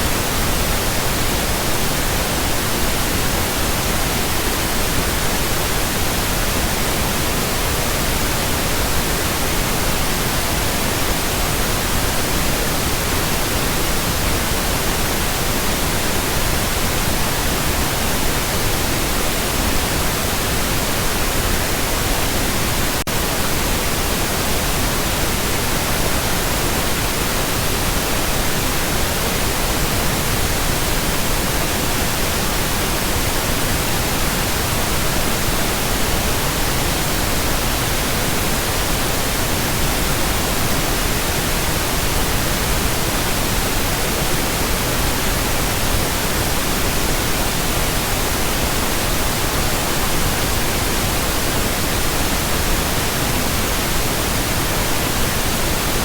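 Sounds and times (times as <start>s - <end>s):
pink noise hiss: 0.0s - 56.0s.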